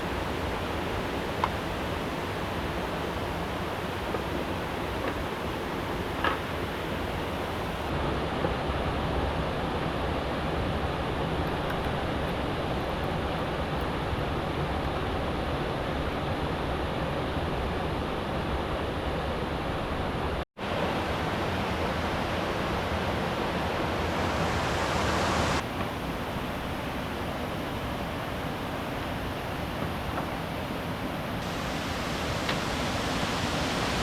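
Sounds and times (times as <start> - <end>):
river water flowing: 0.0 - 8.0, 18.8 - 34.0.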